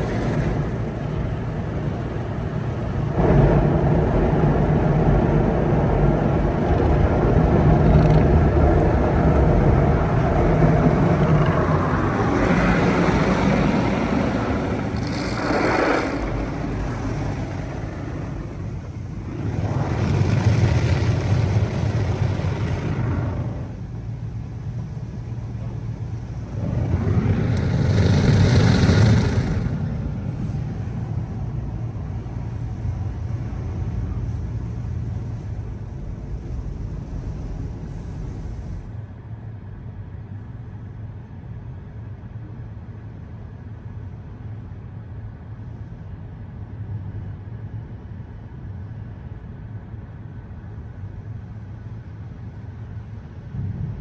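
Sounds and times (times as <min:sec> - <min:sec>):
rushing wash water: 0:00.0 - 0:24.2, 0:25.4 - 0:33.4
car wash machine hum: 0:00.0 - 0:35.7.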